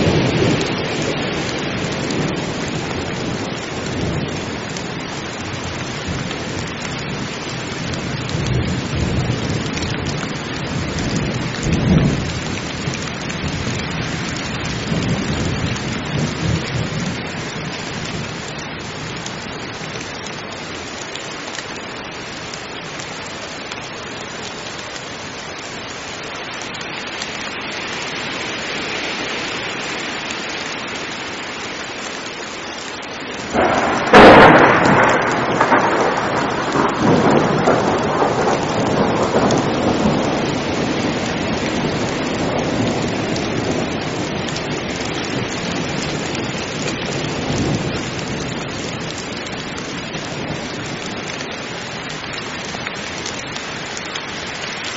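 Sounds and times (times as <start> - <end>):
thunder rumbling: 0.0 - 19.2, 33.5 - 51.4
heavy rain: 0.0 - 54.9.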